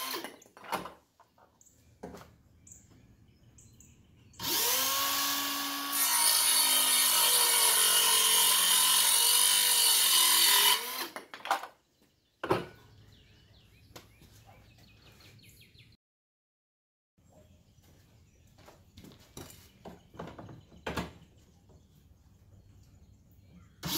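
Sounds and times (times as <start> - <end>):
circular saw cutting wood: 0.0 - 0.4, 4.4 - 11.3.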